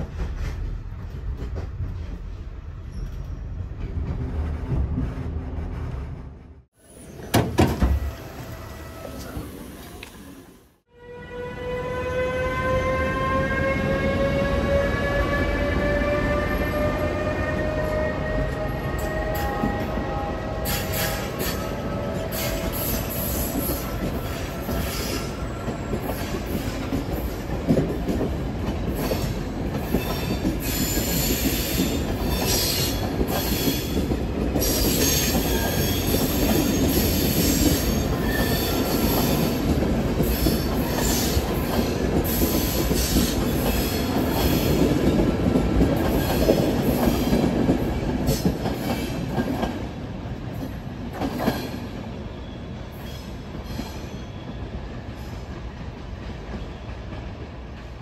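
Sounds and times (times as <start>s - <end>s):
train wheels squealing: 2.8s - 3.7s, 14.1s - 27.3s, 29.0s - 39.6s, 40.2s - 44.9s, 51.4s - 55.5s.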